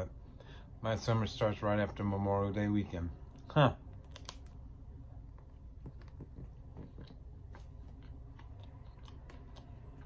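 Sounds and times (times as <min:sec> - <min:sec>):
quiet chewing: 0:05.3 - 0:10.0.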